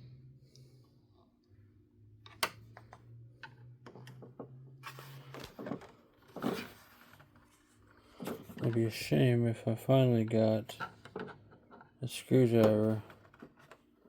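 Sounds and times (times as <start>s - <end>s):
rustling handling noises: 4.8s - 9.2s.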